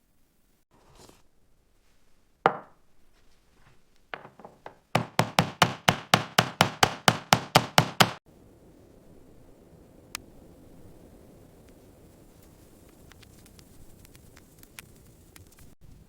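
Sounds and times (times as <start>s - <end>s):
knife chopping on wooden board: 4.2s - 8.2s
sharp knock: 4.2s - 8.2s.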